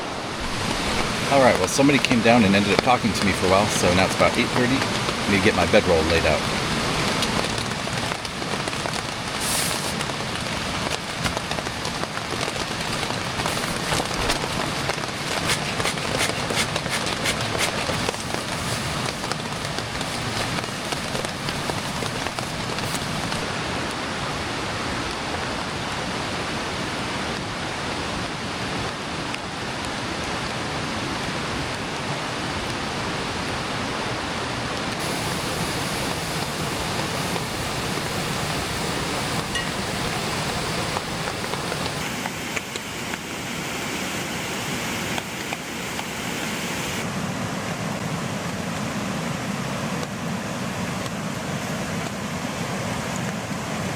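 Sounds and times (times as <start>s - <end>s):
mountain creek rushing: 0.0s - 53.9s.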